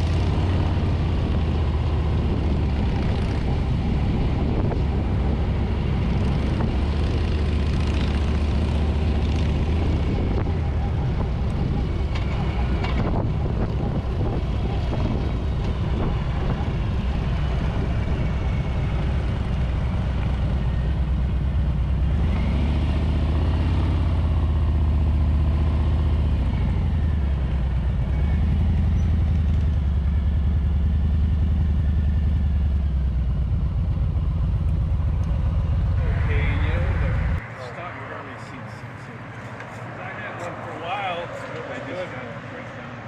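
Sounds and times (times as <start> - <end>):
wind rush: 0.0 - 7.9, 9.6 - 20.1
motorcycle engine running: 0.0 - 37.4.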